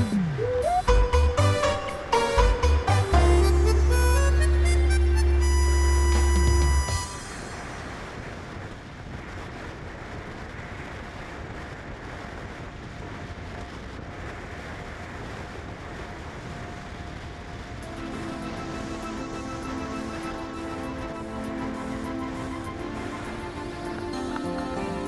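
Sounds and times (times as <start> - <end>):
background music: 0.0 - 7.5, 17.8 - 25.0
steady rushing noise: 0.0 - 25.0.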